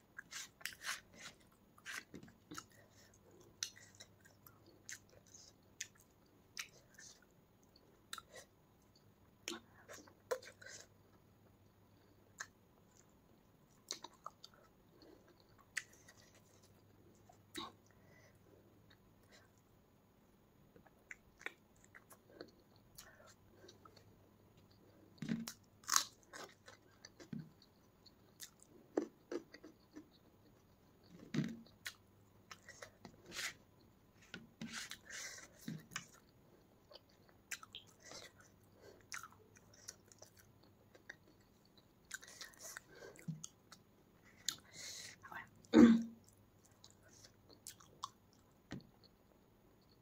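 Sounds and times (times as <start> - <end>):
wet chewing and mouth smacks: 34.9 - 44.7.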